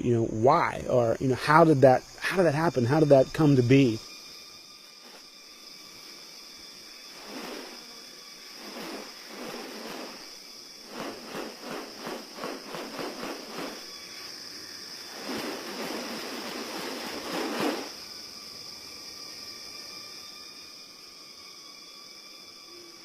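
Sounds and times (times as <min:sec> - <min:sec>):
high-pitched insect drone: 0:00.0 - 0:23.0
loud rustling whooshing bursts: 0:07.1 - 0:07.9, 0:08.5 - 0:14.2, 0:15.0 - 0:18.0.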